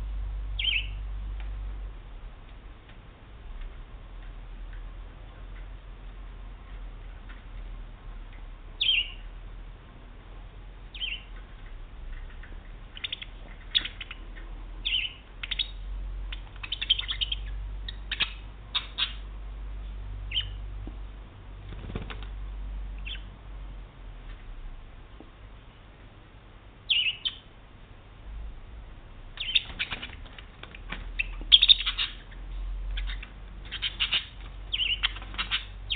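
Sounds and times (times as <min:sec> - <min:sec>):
faint low hum: 0:00.0 - 0:35.9
budgerigar chirps: 0:00.6 - 0:01.0, 0:08.8 - 0:09.2, 0:10.9 - 0:11.3, 0:12.1 - 0:19.2, 0:20.3 - 0:20.6, 0:23.0 - 0:23.3, 0:26.9 - 0:27.5, 0:29.4 - 0:30.1, 0:31.2 - 0:35.9.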